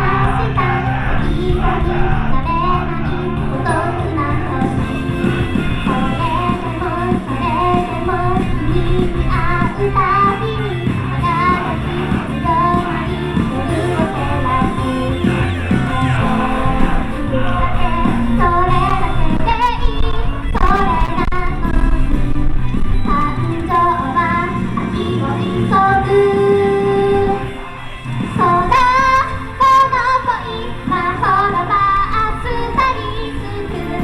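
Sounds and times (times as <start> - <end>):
woman singing: 0.0 - 27.6, 28.4 - 34.0
rock-style pop music: 0.0 - 34.0.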